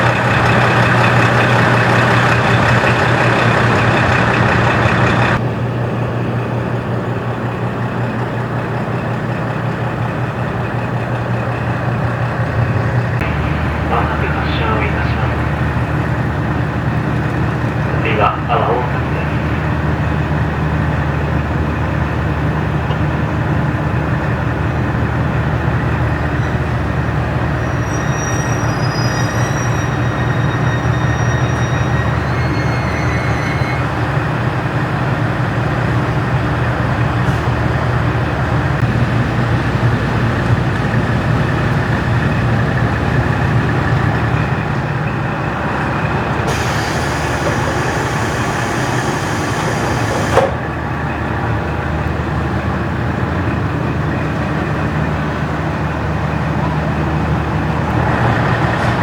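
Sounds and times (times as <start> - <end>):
wheels running on rails: 0.0 - 18.0, 18.9 - 59.0
railcar diesel engine drone: 0.0 - 59.0
faint high-pitched squeals: 27.5 - 34.0.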